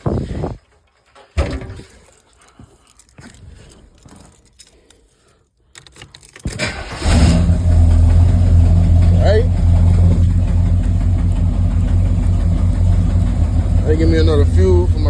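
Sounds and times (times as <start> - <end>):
keys jangling and clicking: 1.8 - 6.6
car engine cranking and running: 6.6 - 15.0.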